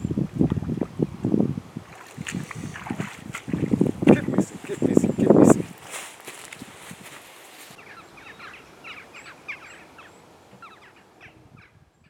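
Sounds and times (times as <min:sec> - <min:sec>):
faint outdoor hiss: 0:00.0 - 0:12.0
small birds chirping: 0:07.7 - 0:12.0.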